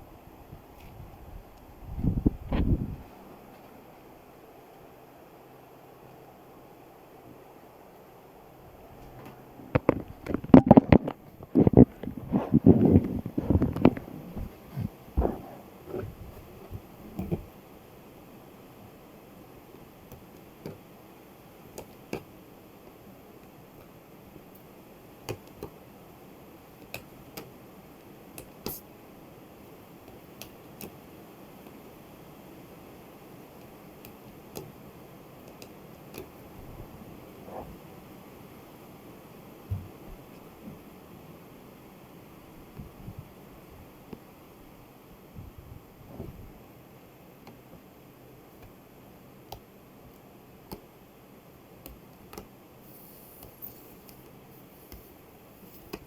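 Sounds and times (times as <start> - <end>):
faint steady hiss: 0.0 - 56.0
low room noise: 0.0 - 56.0
light sharp taps and clicks: 49.5 - 50.9.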